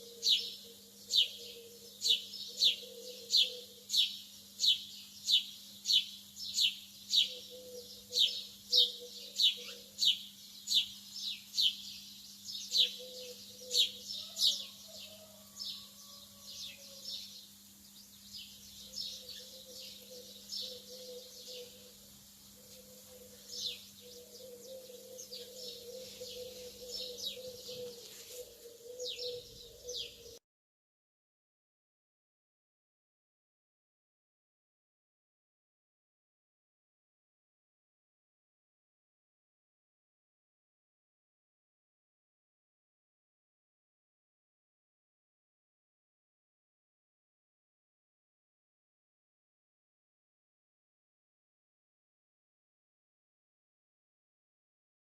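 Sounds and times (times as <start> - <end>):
lovebirds chirping: 15.8 - 30.4.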